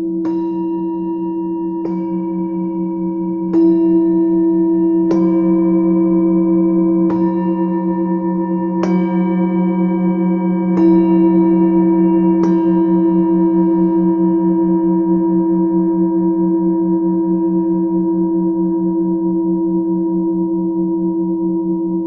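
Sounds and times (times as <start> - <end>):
singing bowls struck: 0.0 - 20.6.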